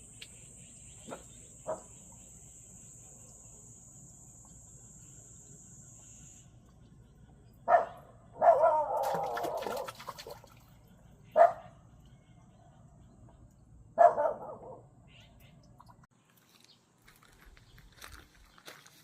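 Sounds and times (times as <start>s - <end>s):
dog barking: 1.1s - 1.9s, 7.7s - 10.4s, 11.4s - 11.8s, 14.0s - 14.8s.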